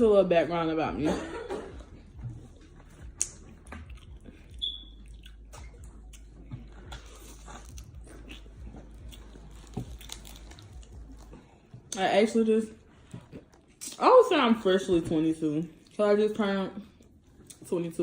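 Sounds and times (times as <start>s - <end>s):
person chewing food: 1.4s - 12.0s, 12.8s - 14.0s.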